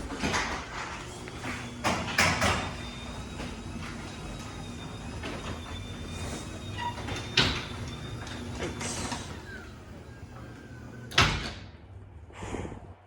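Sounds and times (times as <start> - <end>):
garage door opener humming: 0.0 - 12.3.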